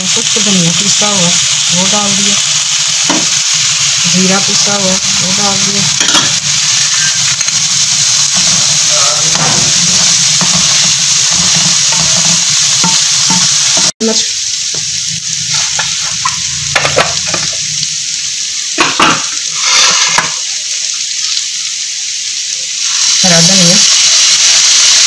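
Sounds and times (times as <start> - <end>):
vegetables sizzling in oil: 0.0 - 25.0
wooden spatula scraping pan: 19.6 - 20.3.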